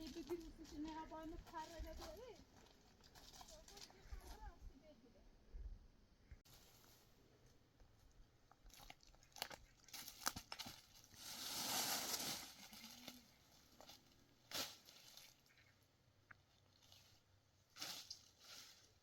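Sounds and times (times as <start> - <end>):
rustling and crinkling handling: 0.0 - 4.6.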